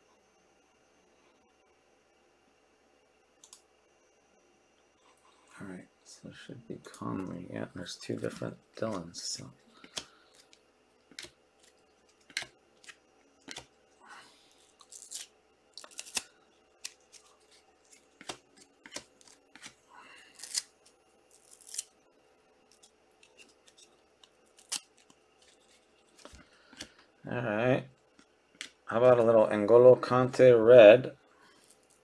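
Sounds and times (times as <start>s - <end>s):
cards clicking: 8.2s - 13.7s, 17.9s - 19.8s
foil wrapper crinkling and tearing: 14.5s - 22.0s, 22.7s - 26.9s, 31.4s - 32.0s.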